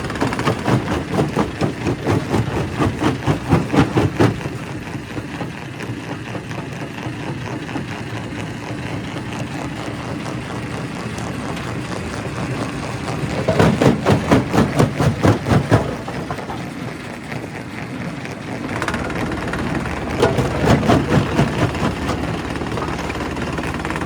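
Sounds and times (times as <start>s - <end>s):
rock crusher knocking and cracking: 0.0s - 5.5s, 13.0s - 16.9s, 18.7s - 24.0s
machine running: 10.1s - 24.0s.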